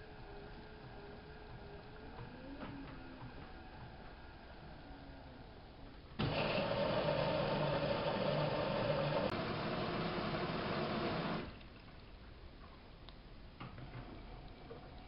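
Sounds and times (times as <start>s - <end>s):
faint steady hum: 0.0s - 15.0s
water rushing in washing machine: 6.2s - 12.0s.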